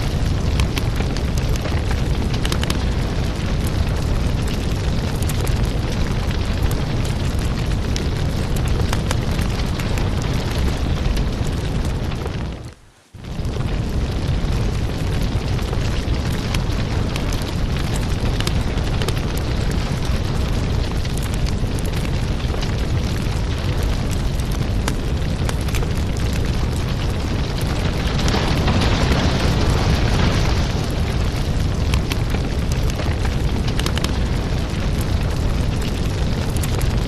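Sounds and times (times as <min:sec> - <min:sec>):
firewood burning with crackles: 0:00.0 - 0:37.0.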